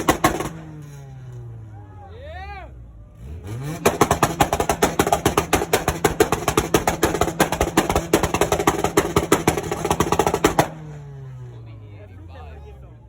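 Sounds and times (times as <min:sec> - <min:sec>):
exhaust popping and crackling: 0:00.0 - 0:01.6, 0:03.2 - 0:11.4
car engine revving high: 0:03.1 - 0:11.6.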